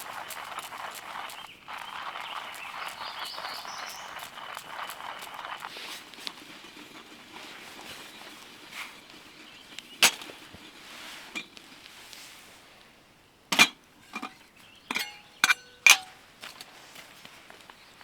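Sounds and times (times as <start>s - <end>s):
birds chirping: 0.0s - 11.9s, 14.2s - 16.0s
rustling and clicking: 0.0s - 12.9s.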